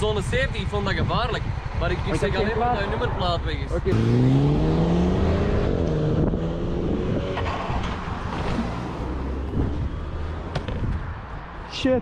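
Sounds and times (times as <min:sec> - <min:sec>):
motorcycle engine pulling away: 0:03.9 - 0:09.5
wind noise on microphone: 0:04.6 - 0:12.0.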